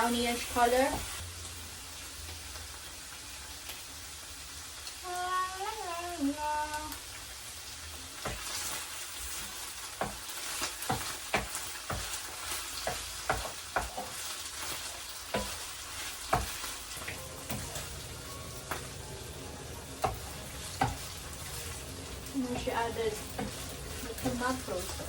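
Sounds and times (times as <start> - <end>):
meat sizzling in a pan: 0.0 - 25.0
utensil knocking against pan: 12.8 - 14.1, 15.3 - 15.6.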